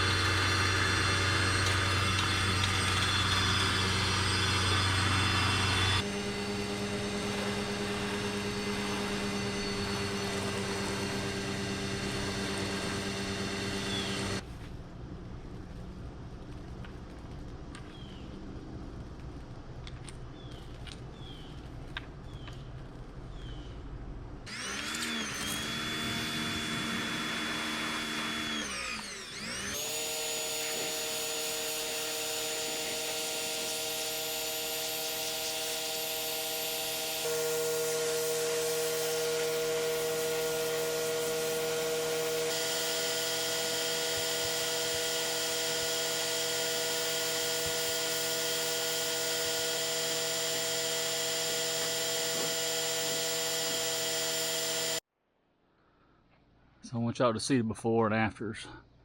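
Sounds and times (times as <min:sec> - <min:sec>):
pressure washer motor hum: 0:00.0 - 0:14.4, 0:24.5 - 0:55.0.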